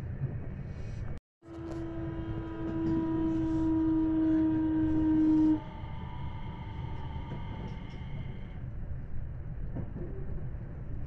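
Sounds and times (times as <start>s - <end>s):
train running rumble: 0.0s - 11.0s
electric humming tone: 1.5s - 8.5s.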